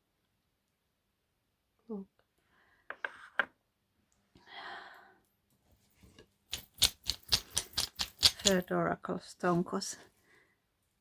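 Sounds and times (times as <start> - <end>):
small stones clattering: 6.5 - 8.7.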